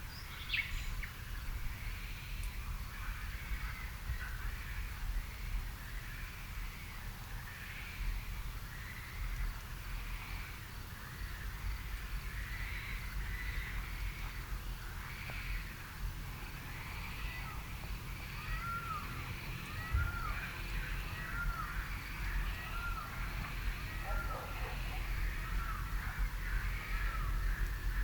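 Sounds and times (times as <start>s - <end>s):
lower bird calls: 7.5s - 28.0s
birds calling: 8.8s - 28.0s.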